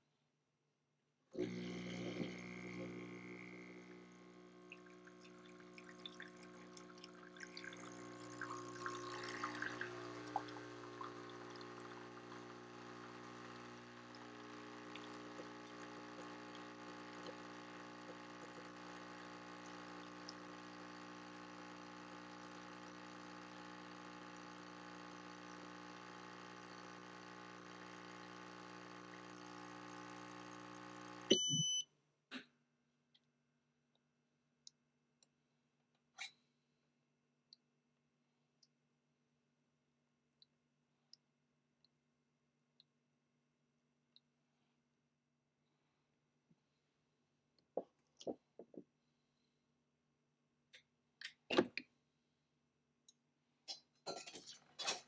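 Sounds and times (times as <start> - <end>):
espresso machine pump buzzing: 1.4 - 31.8
espresso trickling into cup: 4.0 - 31.2
short high beep: 31.3 - 31.8.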